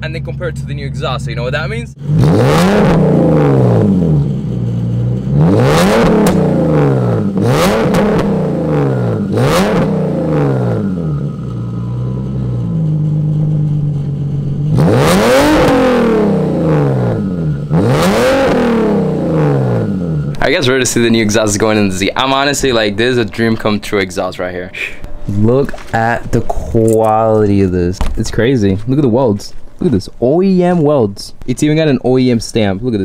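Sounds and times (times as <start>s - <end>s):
car engine idling: 0.0s - 33.0s
car engine revving: 0.0s - 33.0s.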